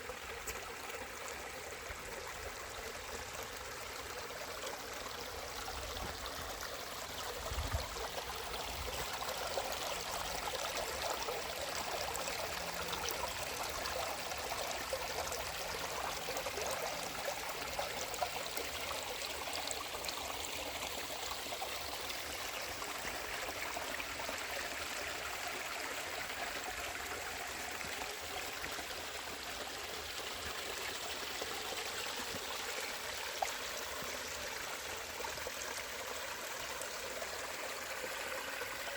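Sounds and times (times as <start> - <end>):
creek water flowing: 0.0 - 38.9.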